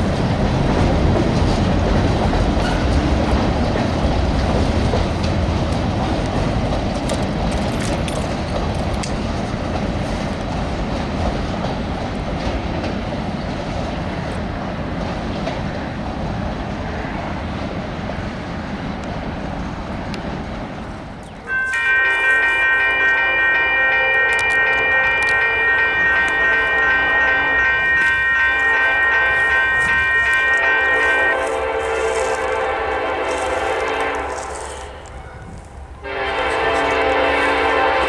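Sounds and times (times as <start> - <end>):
train cars rumbling: 0.0 - 38.0
chord of steady tones: 21.4 - 38.0.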